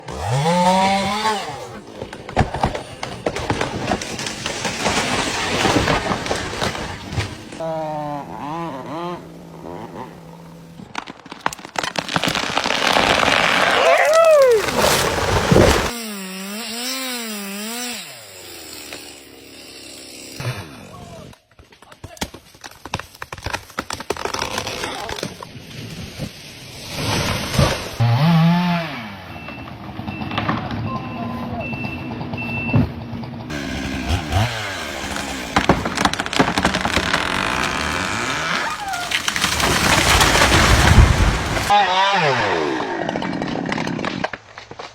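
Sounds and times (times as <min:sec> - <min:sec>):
wood cracking and snapping: 0:00.0 - 0:07.6, 0:09.6 - 0:16.0, 0:21.6 - 0:25.5, 0:33.5 - 0:41.8, 0:43.0 - 0:44.9
chainsaw engine revving: 0:00.0 - 0:10.9, 0:12.5 - 0:21.4, 0:27.6 - 0:29.4, 0:33.5 - 0:44.0.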